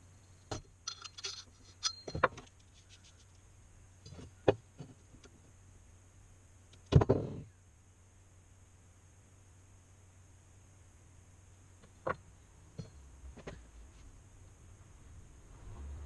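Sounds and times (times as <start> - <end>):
ringing metal clunk: 0.5 - 2.3
metal parts clinking: 0.5 - 2.6.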